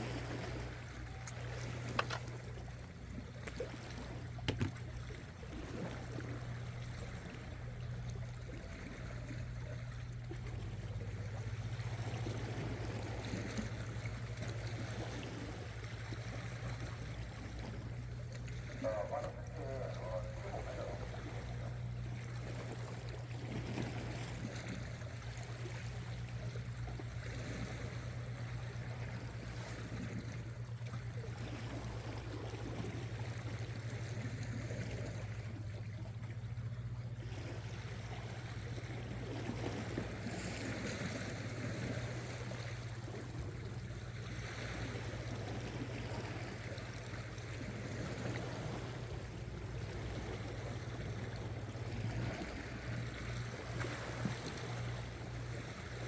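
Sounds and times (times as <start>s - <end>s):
sea water washing against rocks: 0.0s - 9.5s, 37.2s - 56.0s
steady low hum: 0.0s - 56.0s.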